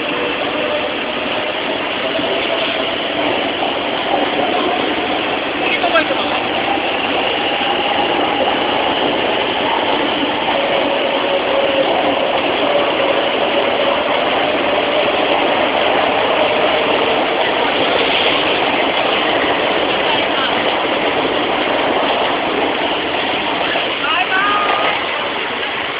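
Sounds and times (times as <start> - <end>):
train running with motor whine: 0.0 - 25.9.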